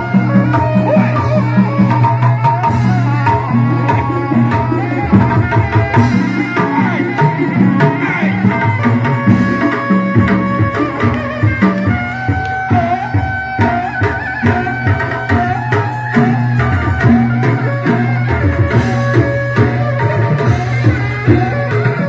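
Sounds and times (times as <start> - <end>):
fast hand-drum beats: 0.0 - 22.0.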